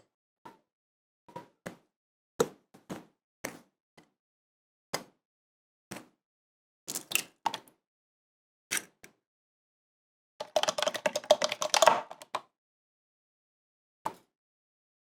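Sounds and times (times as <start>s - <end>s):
kitchen utensils clicking and tapping: 10.4s - 12.4s.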